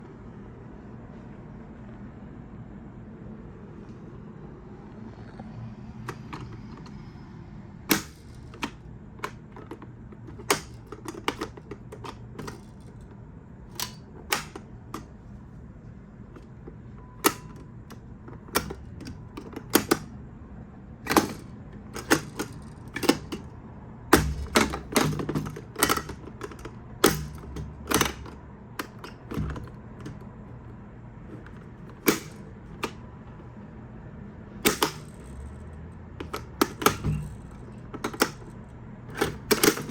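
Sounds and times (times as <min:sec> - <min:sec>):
steady low hum: 0:00.0 - 0:39.9
hard objects clicking: 0:06.0 - 0:07.1, 0:07.9 - 0:15.6, 0:16.4 - 0:20.1, 0:21.1 - 0:33.3, 0:34.6 - 0:39.9.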